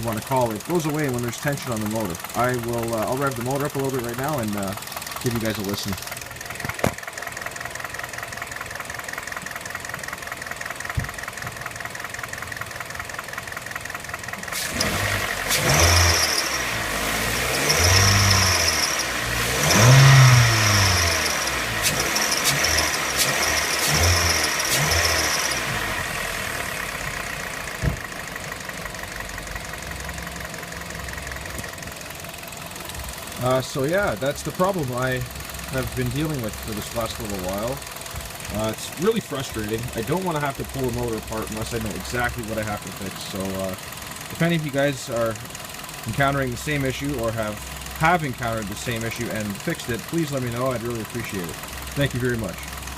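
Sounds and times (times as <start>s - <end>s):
car engine idling and revving: 0.0s - 52.9s.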